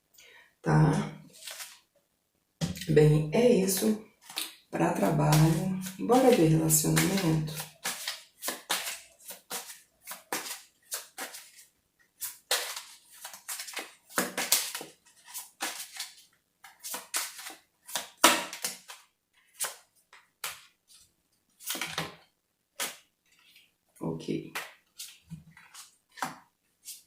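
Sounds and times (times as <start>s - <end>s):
cards shuffled and laid down: 1.4s - 1.8s, 7.0s - 11.6s, 12.2s - 20.8s, 21.6s - 23.7s, 24.5s - 27.0s.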